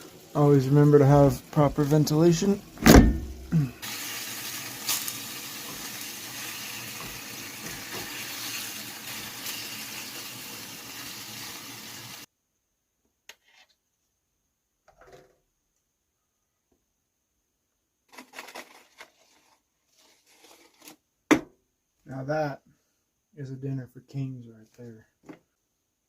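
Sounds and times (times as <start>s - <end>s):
food sizzling in a pan: 0.0s - 12.3s.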